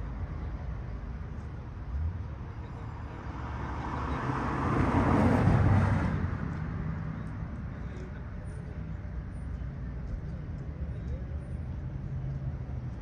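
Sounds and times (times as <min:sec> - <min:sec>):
car passing by: 0:03.2 - 0:06.9.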